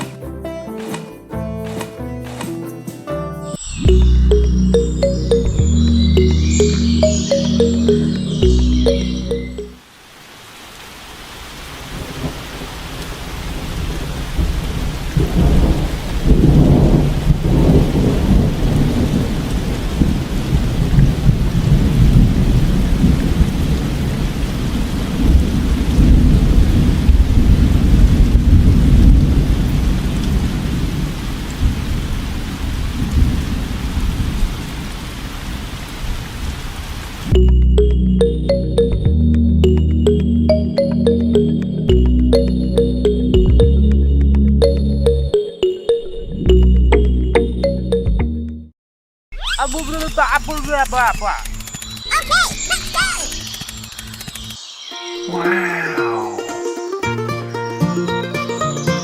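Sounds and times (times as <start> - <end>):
heavy rain: 9.7 - 37.4
rumbling thunder: 12.0 - 35.4.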